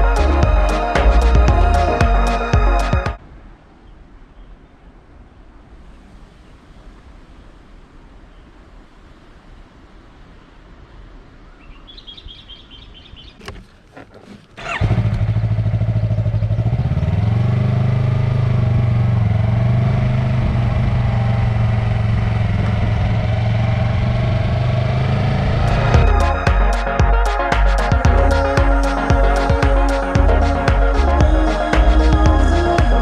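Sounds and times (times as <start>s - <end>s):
motorcycle engine idling: 14.6s - 17.2s.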